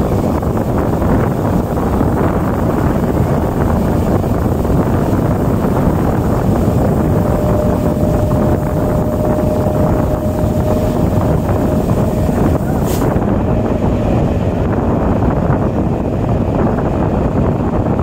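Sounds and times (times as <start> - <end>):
train running rumble on board: 0.0 - 18.0
wind on microphone: 0.0 - 18.0
thin steady tone: 4.8 - 13.1.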